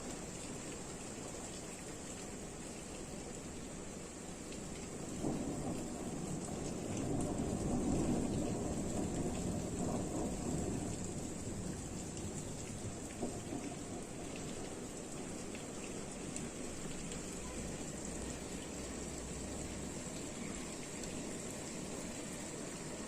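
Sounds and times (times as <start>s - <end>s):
steady rain shower: 0.0s - 23.0s
distant thunder rumbling: 4.9s - 23.0s.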